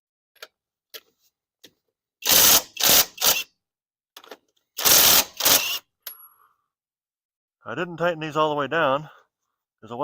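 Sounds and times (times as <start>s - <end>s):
impact wrench bursts: 2.2s - 3.6s, 4.8s - 5.9s.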